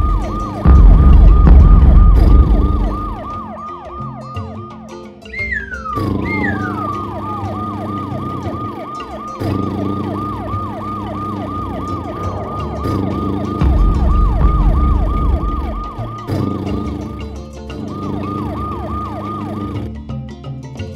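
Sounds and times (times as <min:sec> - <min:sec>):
cartoon siren electronic sweep: 0:00.0 - 0:19.9
falling whistles: 0:05.2 - 0:19.8.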